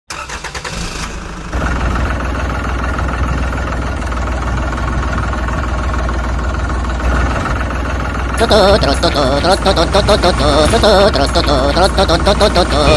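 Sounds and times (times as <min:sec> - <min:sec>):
engine idling with deep hum: 0:00.6 - 0:12.9.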